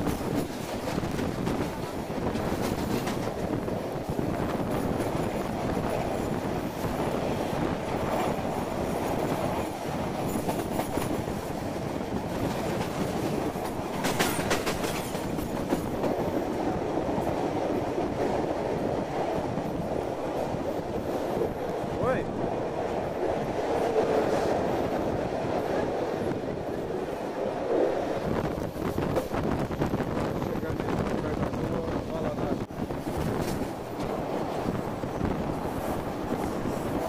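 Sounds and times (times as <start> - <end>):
wheels rumbling on rails: 0.0 - 37.0.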